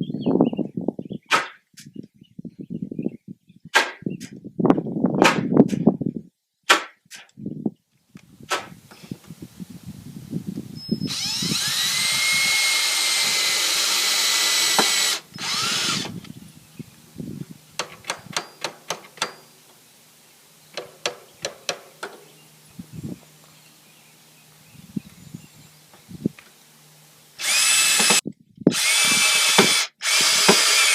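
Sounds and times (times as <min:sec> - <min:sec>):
power drill spinning: 0:11.0 - 0:16.2, 0:27.4 - 0:30.9
sharp clicks and taps: 0:17.8 - 0:19.4.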